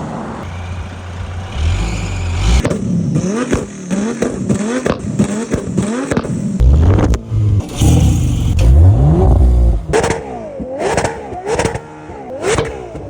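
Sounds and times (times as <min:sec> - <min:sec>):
car engine revving: 0:00.4 - 0:02.8, 0:05.2 - 0:10.5.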